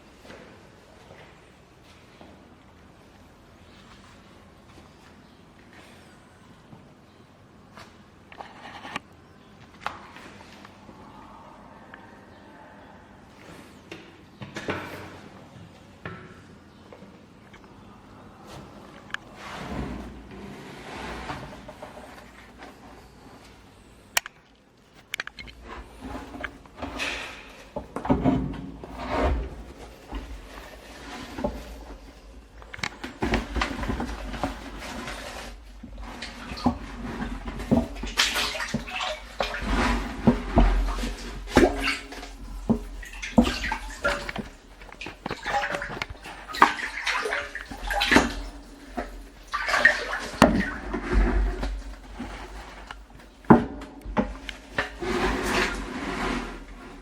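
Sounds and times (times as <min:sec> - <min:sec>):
boots splashing through water: 0:37.7 - 0:51.4.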